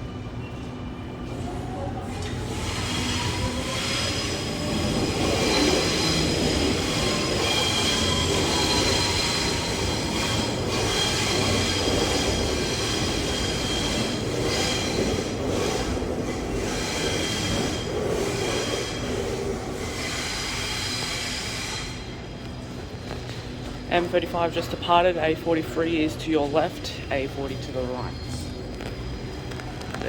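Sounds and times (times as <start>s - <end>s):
train running rumble: 0.0s - 30.0s
wheel squeal: 2.2s - 22.1s.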